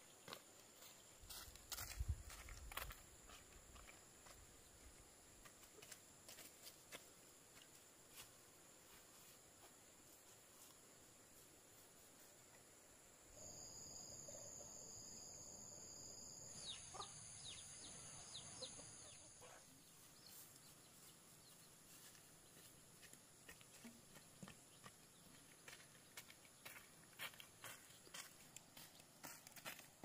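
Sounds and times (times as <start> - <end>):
insect drone: 9.2 - 18.6.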